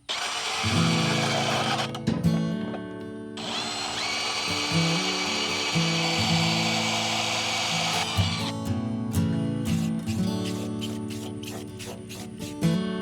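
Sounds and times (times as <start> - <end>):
power tool cutting steel pipe: 0.0 - 2.1, 3.4 - 8.7, 9.7 - 12.7
plucked string music: 4.5 - 13.0.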